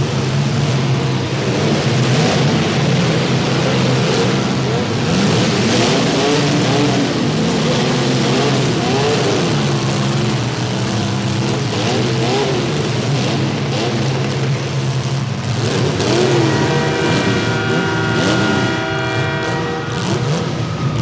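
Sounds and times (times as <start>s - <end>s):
car engines revving: 0.0s - 21.0s
steady held horn-like tone: 16.2s - 21.0s.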